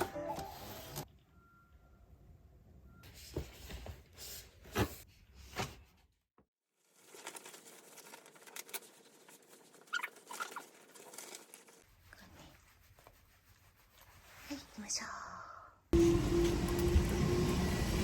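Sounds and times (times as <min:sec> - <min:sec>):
pets scratching and pattering: 0:07.2 - 0:14.6.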